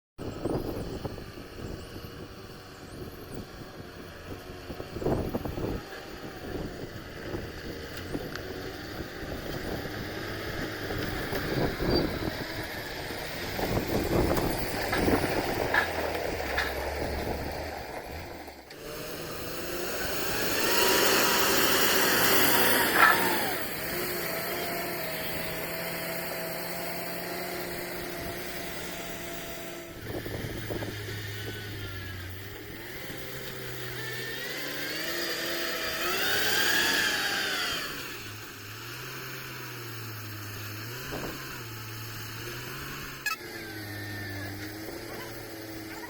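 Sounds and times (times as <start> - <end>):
engine revving up and down: 0.2 - 46.0.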